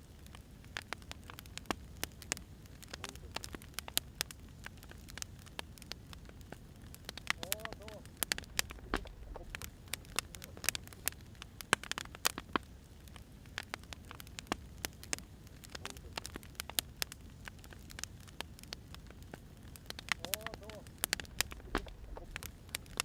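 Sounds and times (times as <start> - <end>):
fire pops and snaps: 0.0 - 23.0
wood fire crackling: 0.0 - 23.0.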